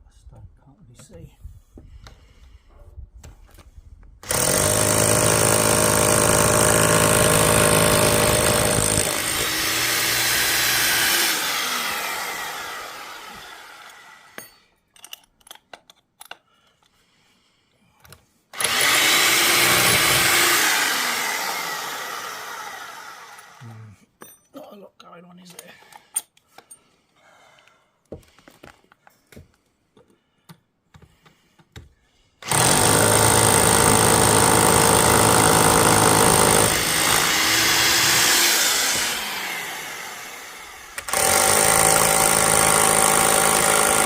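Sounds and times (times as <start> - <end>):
electric power tool motor: 4.2 - 14.4, 18.6 - 23.6, 32.4 - 44.0.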